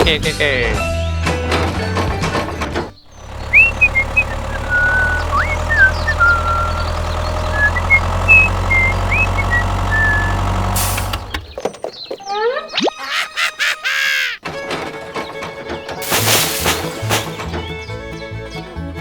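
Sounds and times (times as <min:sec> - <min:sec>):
vehicle engine idling: 0:00.0 - 0:11.6
birds chirping: 0:00.0 - 0:19.0.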